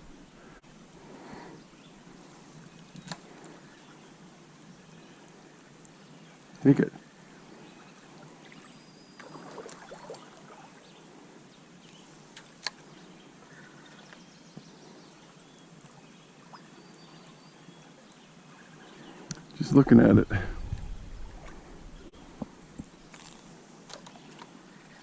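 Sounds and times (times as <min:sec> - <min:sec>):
flowing stream water: 0:02.1 - 0:11.0.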